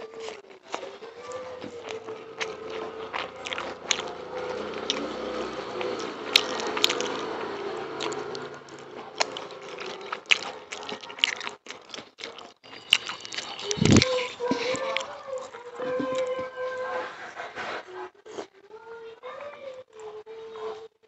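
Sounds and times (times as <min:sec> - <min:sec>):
chewing with wet mouth smacks: 0:01.6 - 0:16.3.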